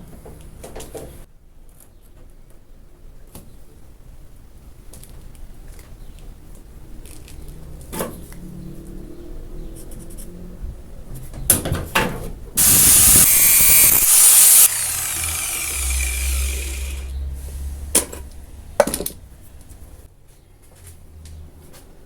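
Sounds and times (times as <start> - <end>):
loud spray hiss: 12.6 - 17.1.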